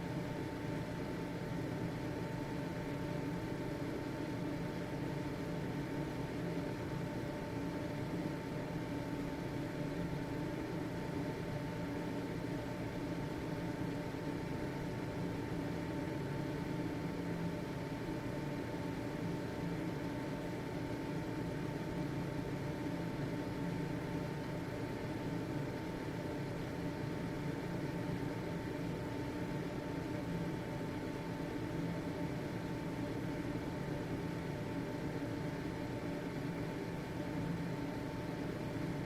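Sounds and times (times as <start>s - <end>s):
ventilation fan running: 0.0s - 39.0s.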